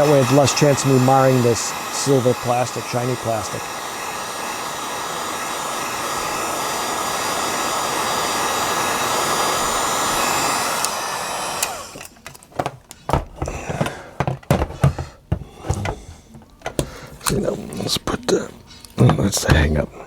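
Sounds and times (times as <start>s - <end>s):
fan winding down whine: 0.0s - 12.4s
heat gun blowing: 0.0s - 20.0s
handling knocks and clicks: 12.0s - 17.9s.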